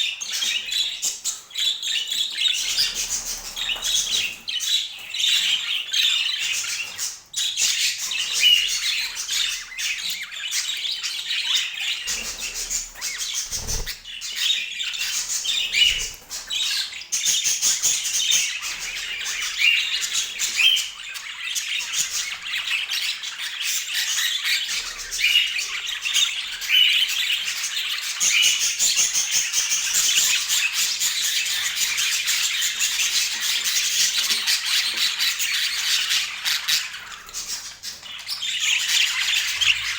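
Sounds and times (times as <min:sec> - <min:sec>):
budgerigars chattering: 0:10.4 - 0:17.7.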